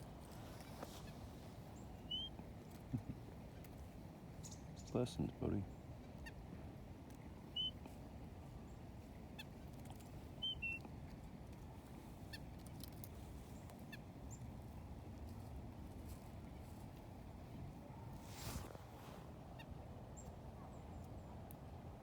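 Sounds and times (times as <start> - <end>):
songbirds chirping: 0.0 - 21.6
low background noise: 0.0 - 22.0.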